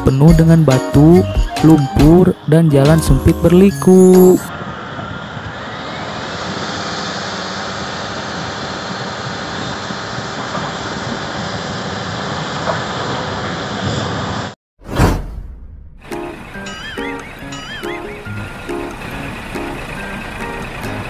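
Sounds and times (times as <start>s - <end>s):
person speaking: 0.0s - 4.5s
bulldozer working: 15.9s - 21.0s
dump truck tipping load: 16.0s - 21.0s.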